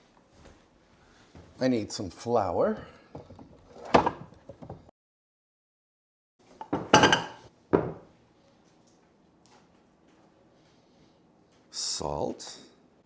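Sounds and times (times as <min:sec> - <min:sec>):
dishes knocking on counter: 0:06.6 - 0:08.1.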